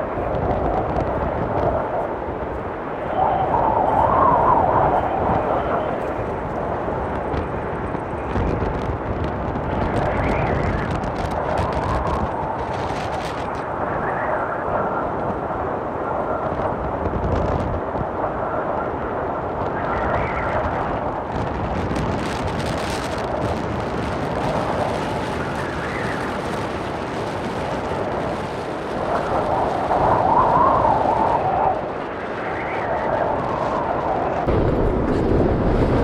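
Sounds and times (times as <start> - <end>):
strong wind on microphone: 0.0 - 36.0.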